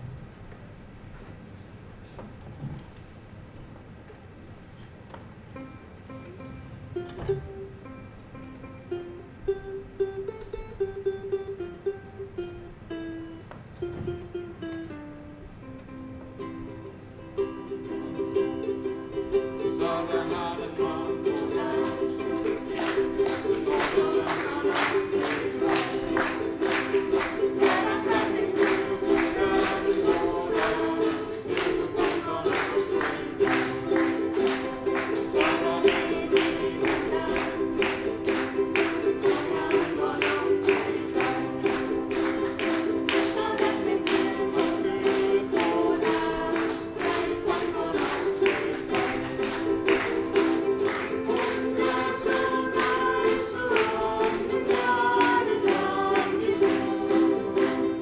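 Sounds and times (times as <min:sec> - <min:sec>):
strummed string instruments: 0:05.5 - 0:58.0
group singing: 0:19.3 - 0:58.0.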